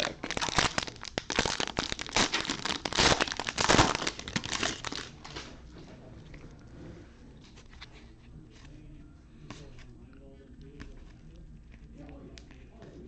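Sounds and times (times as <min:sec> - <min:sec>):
plastic wrapper tearing and crinkling: 0:00.0 - 0:05.5.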